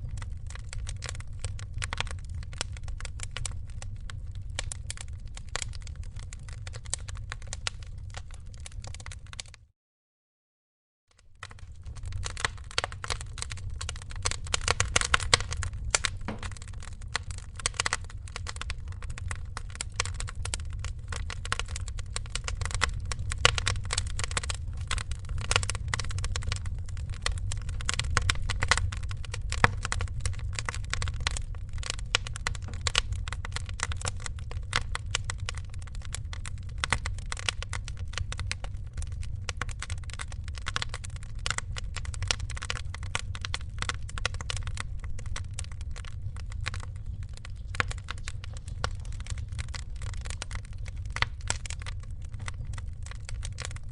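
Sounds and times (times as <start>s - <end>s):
wood fire crackling: 0.0s - 9.6s, 11.2s - 53.9s
low rumble: 11.4s - 37.2s.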